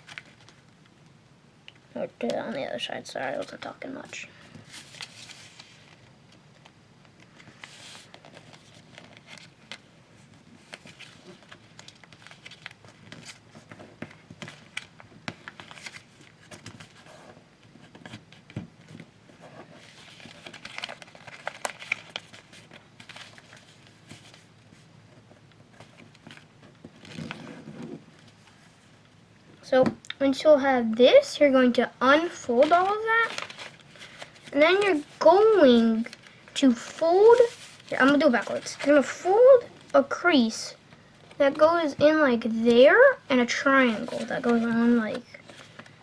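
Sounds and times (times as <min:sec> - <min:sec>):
paper being folded and creased: 0:00.0 - 0:00.7, 0:04.7 - 0:28.9, 0:32.2 - 0:40.1, 0:43.3 - 0:46.0.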